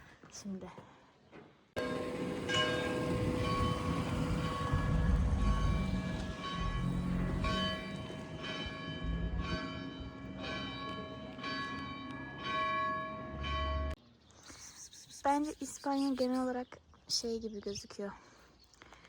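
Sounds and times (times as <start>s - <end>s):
church bells ringing: 1.8s - 14.0s
low rumble: 1.8s - 14.0s.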